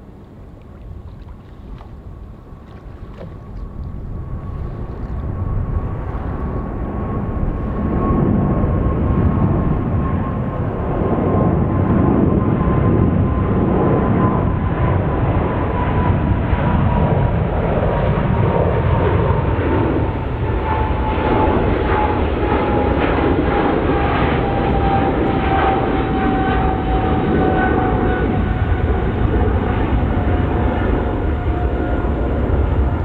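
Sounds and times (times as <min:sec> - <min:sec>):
jet engines at takeoff: 0:00.0 - 0:33.0.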